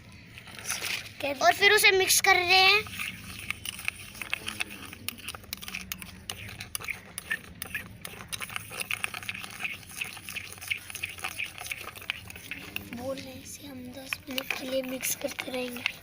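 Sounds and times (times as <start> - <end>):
stirring sticky paste: 0.2 - 16.0.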